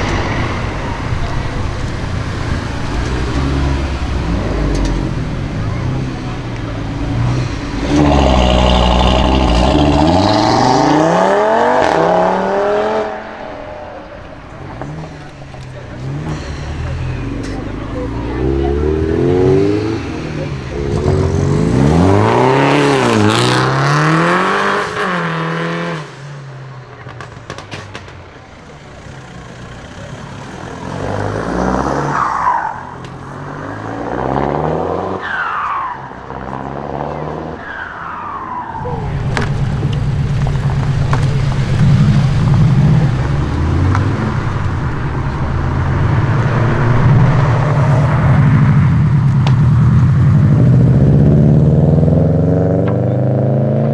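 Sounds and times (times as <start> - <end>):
deep engine rumble: 0.0 - 24.4, 36.5 - 53.5
car engines revving: 0.0 - 53.9.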